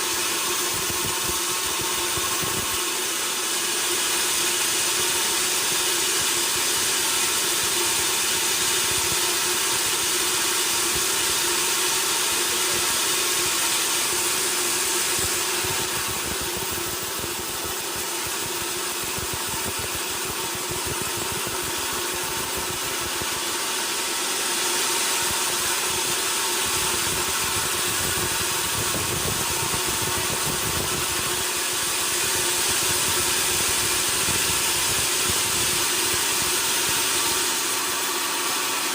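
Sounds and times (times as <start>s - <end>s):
sawmill machinery humming: 0.0s - 38.9s.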